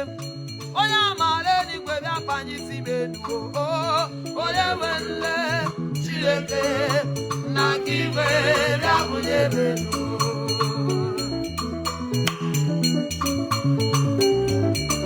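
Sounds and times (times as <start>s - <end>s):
bass line: 0.0s - 15.0s
wavering vibrato melody: 0.0s - 15.0s
gospel band playing: 5.2s - 15.0s
shaker and drum strokes: 5.2s - 15.0s.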